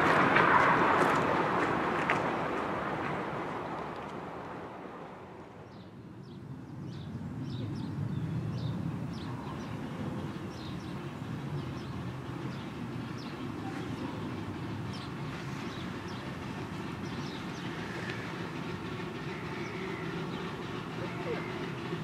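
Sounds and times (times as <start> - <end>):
distant steam train rumble: 0.0 - 22.0
birds chirping: 5.6 - 22.0.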